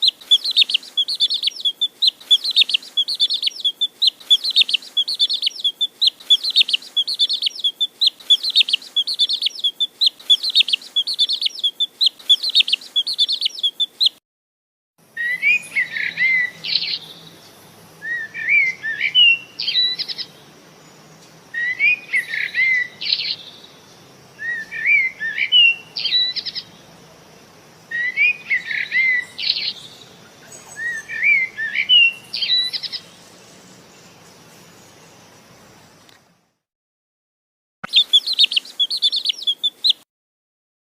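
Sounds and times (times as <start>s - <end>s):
bird rapid chirping: 0.0s - 14.2s, 37.8s - 40.0s
bird whistled phrase: 18.0s - 20.1s, 21.6s - 23.4s, 24.4s - 26.5s, 30.6s - 32.9s.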